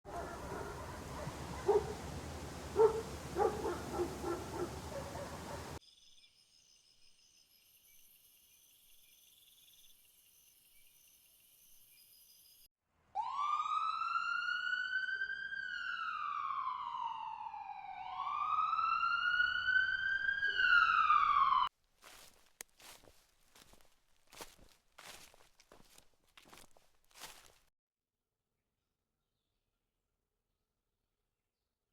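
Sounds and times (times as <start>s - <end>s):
siren wailing: 13.2s - 21.7s.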